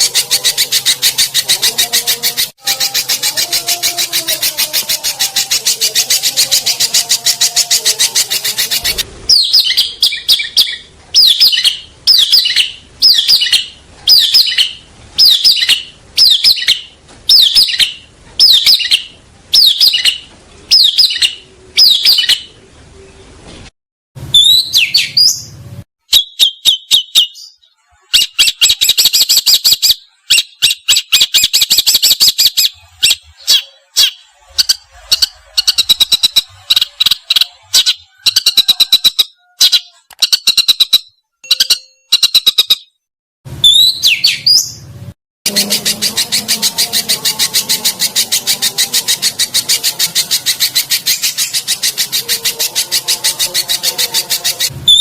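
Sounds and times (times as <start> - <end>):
songbird whistles and trills: 24.3 - 25.5, 26.1 - 43.0, 43.6 - 44.8, 45.5 - 55.0.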